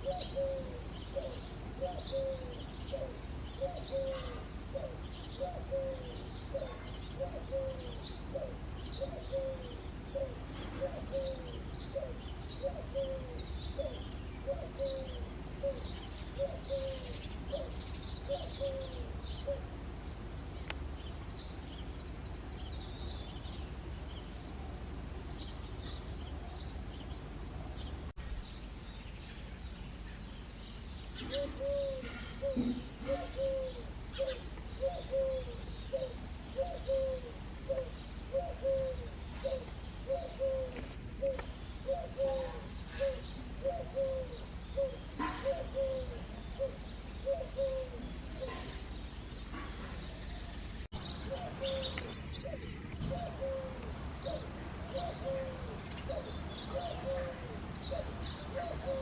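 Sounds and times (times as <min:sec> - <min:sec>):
dove cooing: 0:00.0 - 0:19.8, 0:31.2 - 0:48.9, 0:51.1 - 0:59.0
small birds chirping: 0:25.3 - 0:59.0.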